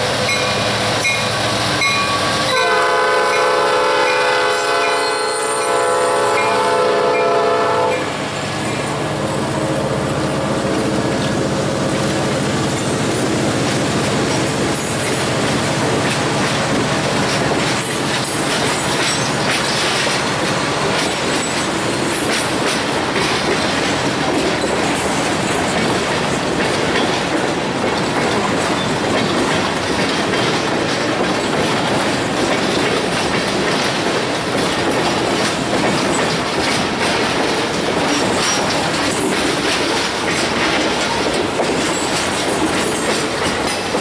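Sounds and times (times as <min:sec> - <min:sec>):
train wheels clicking over rail joints: 0:00.0 - 0:44.0.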